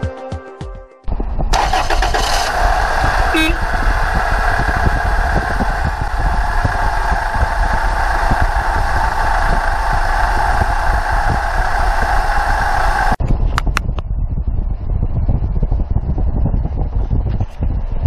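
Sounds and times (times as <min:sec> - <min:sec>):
car engine idling: 0:01.5 - 0:13.2.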